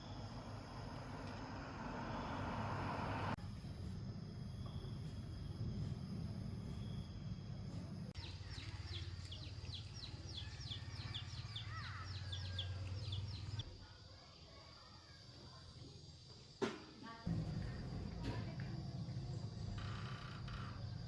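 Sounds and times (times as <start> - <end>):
birds chirping: 8.2 - 13.6.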